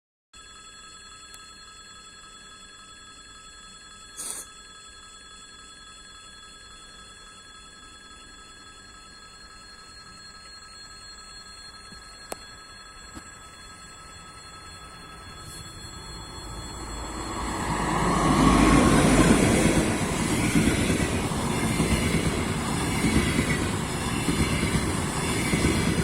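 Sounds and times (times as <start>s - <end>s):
high-pitched rail ringing: 3.9s - 26.0s.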